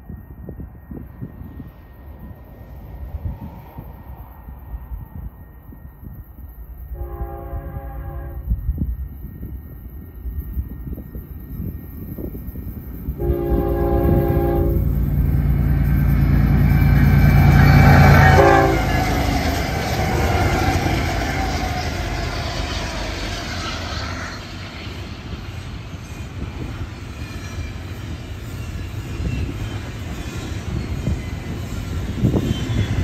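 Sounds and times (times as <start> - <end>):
diesel locomotive engines: 0.0 - 33.0
locomotive horn: 7.0 - 8.5, 13.2 - 15.1, 17.4 - 19.4.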